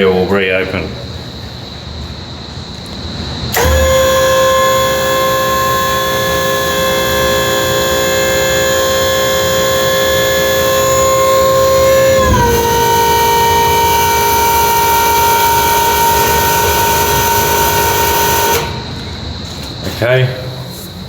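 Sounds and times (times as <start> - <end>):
warning siren high tone: 3.5 - 19.3.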